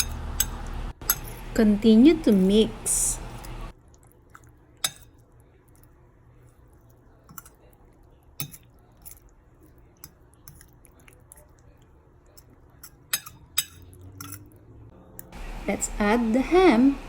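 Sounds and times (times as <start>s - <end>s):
wet mixture squelching: 3.2s - 14.8s
fork tapping against bowl: 12.8s - 14.4s.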